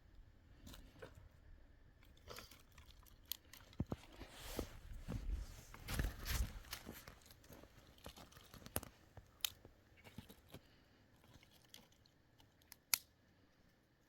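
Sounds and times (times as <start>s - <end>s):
faint crunches: 2.0s - 12.0s.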